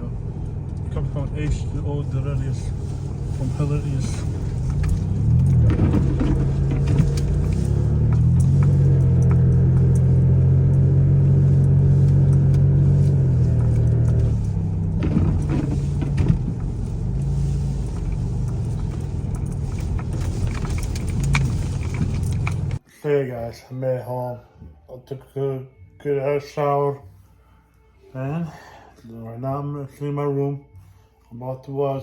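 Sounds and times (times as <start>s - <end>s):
car engine under load: 0.0s - 22.8s.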